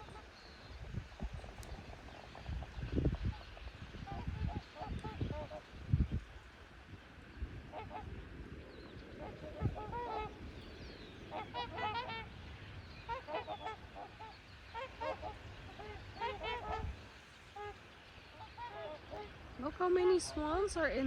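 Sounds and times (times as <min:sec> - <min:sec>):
swans honking: 0:09.2 - 0:21.0.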